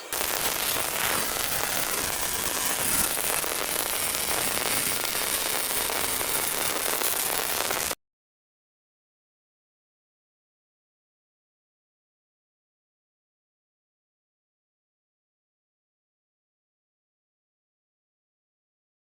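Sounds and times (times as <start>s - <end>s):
arc welding crackle: 0.0s - 8.0s.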